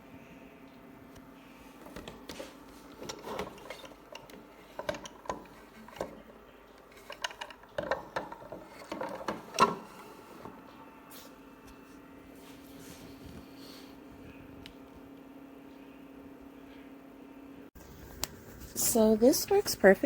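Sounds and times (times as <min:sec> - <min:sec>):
faint steady hum: 0:00.0 - 0:20.0
clicks and knocks of handling: 0:01.8 - 0:10.6.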